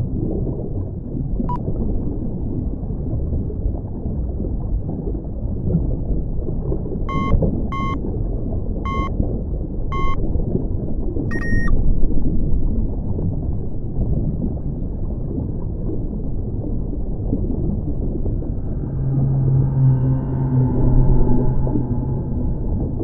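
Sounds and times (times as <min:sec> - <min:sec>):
low rumbling drone: 0:00.0 - 0:23.0
short electronic beeps: 0:07.1 - 0:08.0, 0:08.9 - 0:09.1, 0:09.9 - 0:10.2, 0:11.3 - 0:11.7.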